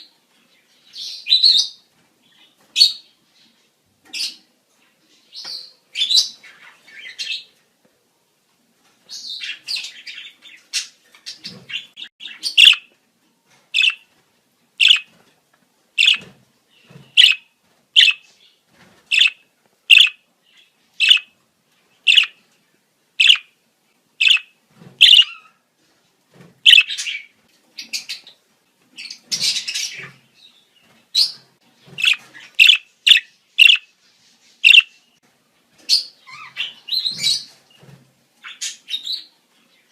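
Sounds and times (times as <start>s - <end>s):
budgerigars chirping: 9.3s - 12.9s, 13.8s - 14.0s, 14.8s - 15.1s, 16.0s - 16.3s, 17.1s - 18.3s, 19.1s - 20.2s, 21.0s - 21.3s, 22.1s - 22.4s, 23.2s - 23.5s, 24.2s - 25.5s, 26.7s - 28.3s, 31.2s - 33.9s, 34.6s - 35.0s.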